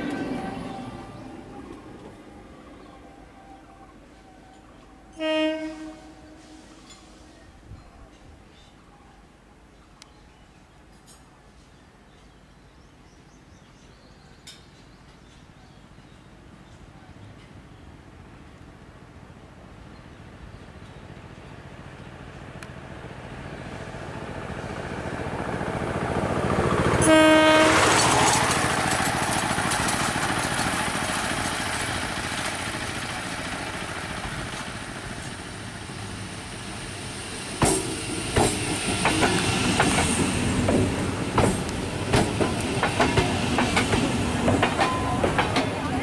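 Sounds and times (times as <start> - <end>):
electric train approaching: 0.0 - 8.7, 20.7 - 46.0
train horn blast: 5.1 - 7.4, 27.0 - 28.3
wheel clatter over rail joints: 28.0 - 35.4, 37.6 - 46.0.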